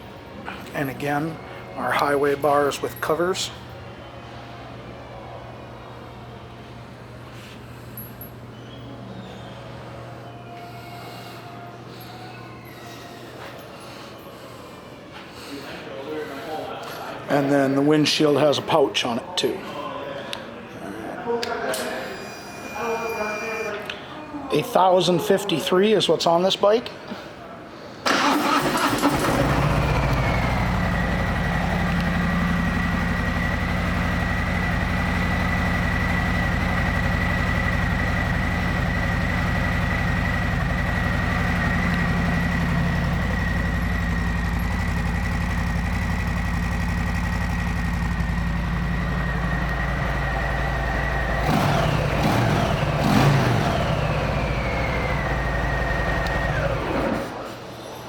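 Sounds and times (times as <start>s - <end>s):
high whine: 21.8s - 23.9s
motorcycle engine idling: 28.2s - 57.0s.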